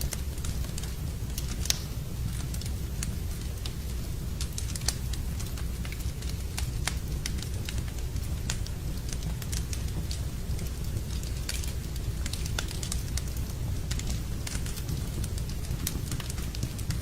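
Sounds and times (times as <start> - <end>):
wood fire crackling: 0.0 - 17.0
sharp pops of fire: 0.1 - 3.8.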